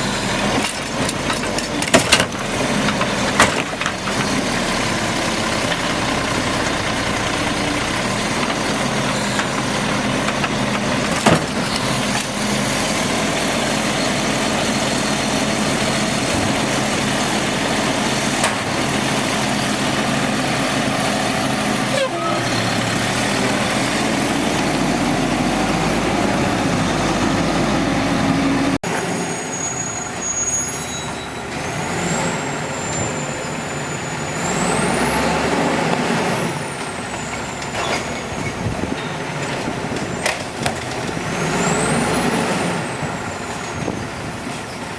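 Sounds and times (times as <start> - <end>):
garbage truck engine rumble: 0.0 - 44.9
high sliding squeals: 21.8 - 24.0, 28.3 - 36.0, 41.3 - 44.9.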